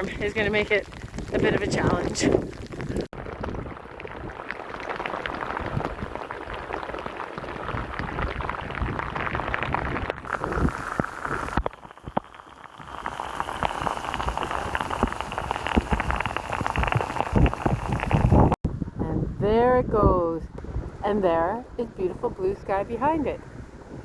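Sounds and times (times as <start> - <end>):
heavy rain pouring: 0.0 - 18.6.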